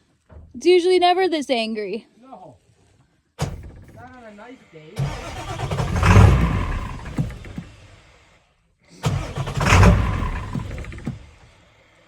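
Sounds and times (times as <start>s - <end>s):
truck engine firing roughly: 5.0s - 8.1s, 9.0s - 11.7s.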